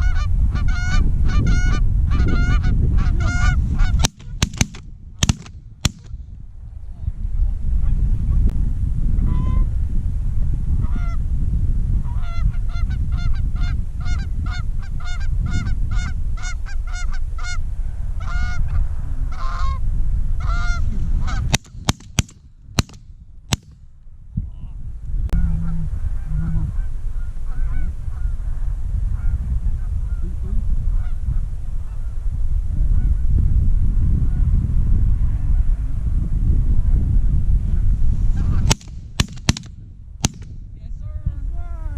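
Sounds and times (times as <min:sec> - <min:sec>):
wind rumble on microphone: 0:00.0 - 0:41.9
shotgun shots: 0:04.0 - 0:06.2, 0:21.5 - 0:23.8, 0:38.7 - 0:40.6.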